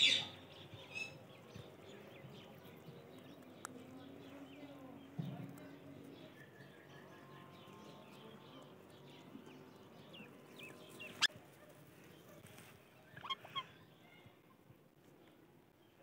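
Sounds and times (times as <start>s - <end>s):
faint bird chirps: 12.2s - 14.6s.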